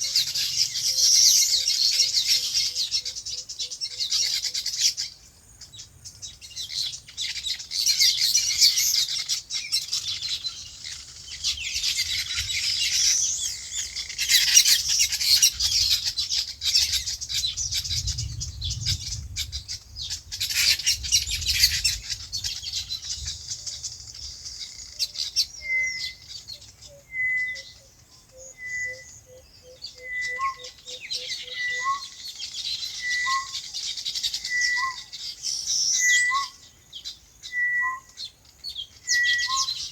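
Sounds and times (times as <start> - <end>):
small birds chirping: 0.0 - 39.9
bird call repeating: 26.9 - 32.2.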